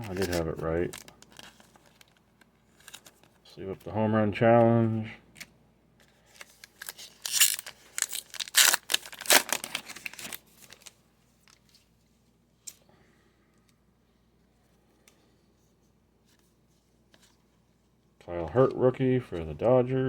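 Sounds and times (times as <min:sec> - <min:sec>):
plastic sleeve crinkling: 0:00.0 - 0:03.5, 0:06.2 - 0:11.9.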